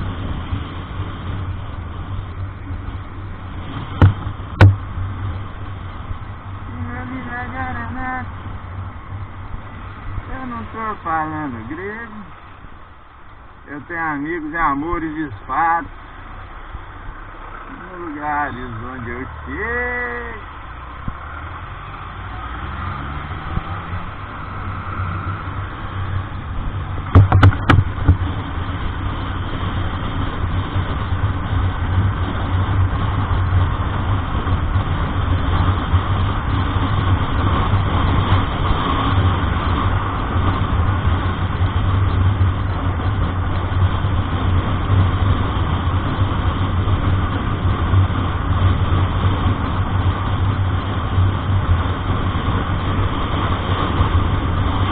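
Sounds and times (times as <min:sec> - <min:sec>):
truck engine and road noise: 0:00.0 - 0:54.9
sharp knocks: 0:04.0 - 0:04.9, 0:27.1 - 0:28.2.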